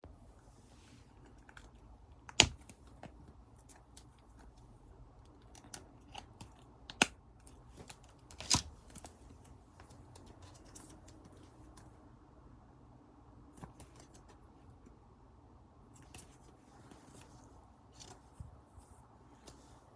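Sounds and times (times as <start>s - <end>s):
plastic sleeves and cards rustling: 0.7s - 11.9s, 15.9s - 19.9s.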